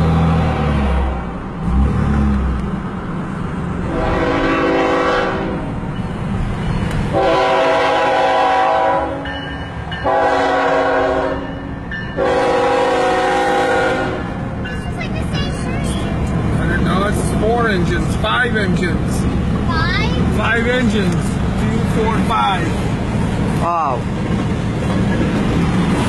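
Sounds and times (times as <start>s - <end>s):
train rumbling past: 0.0s - 26.0s
locomotive air horn blasts: 3.8s - 5.7s, 7.1s - 9.3s, 10.0s - 11.6s, 12.2s - 14.3s.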